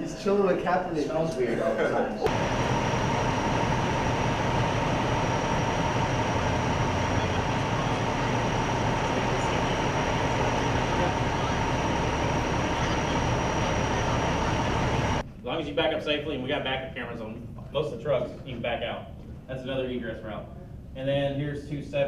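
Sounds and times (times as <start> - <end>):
vehicle rumble: 2.3 - 15.2
constant whine: 2.3 - 15.7.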